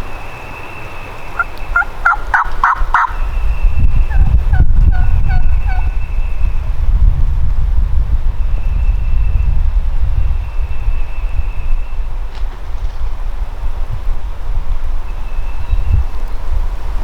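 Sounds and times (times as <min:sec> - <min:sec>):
wind rumble on microphone: 0:00.0 - 0:17.0
turkey gobbling: 0:01.2 - 0:03.3, 0:04.1 - 0:06.0.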